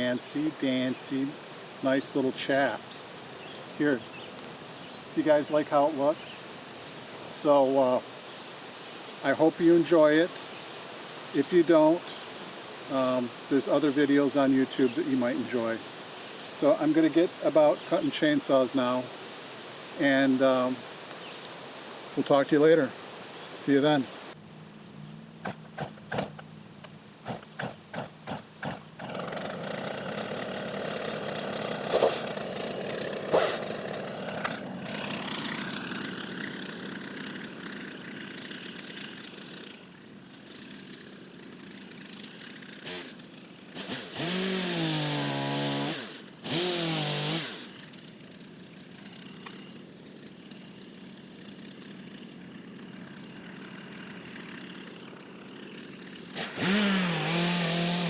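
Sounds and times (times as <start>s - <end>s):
chainsaw engine idling and revving: 0.0s - 24.1s, 25.0s - 58.0s
chainsaw pull-start: 25.3s - 58.0s.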